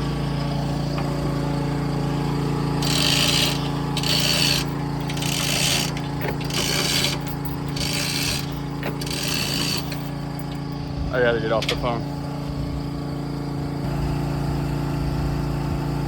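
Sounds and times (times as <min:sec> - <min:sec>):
water pump engine running: 0:00.0 - 0:16.0
raspy ratchet strokes: 0:02.7 - 0:10.9.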